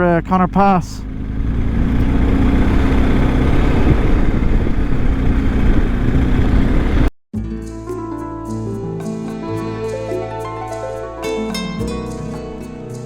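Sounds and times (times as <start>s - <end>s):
motorcycle engine running: 0.0s - 7.1s
wind noise: 1.4s - 7.1s.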